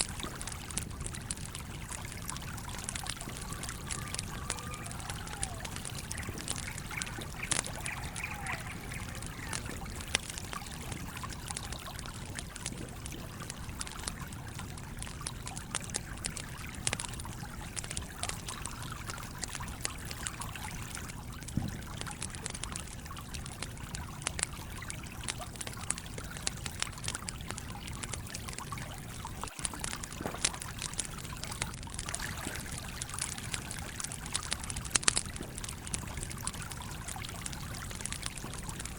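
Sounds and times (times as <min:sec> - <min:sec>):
campfire crackling and popping: 0:00.0 - 0:38.9
stream flowing: 0:00.0 - 0:38.9.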